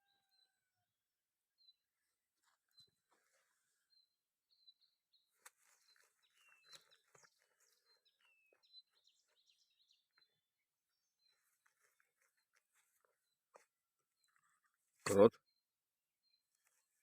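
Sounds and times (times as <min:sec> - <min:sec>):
faint songbirds singing: 0:00.0 - 0:00.8, 0:01.5 - 0:17.0
soft clicks and scuffs: 0:05.4 - 0:07.8.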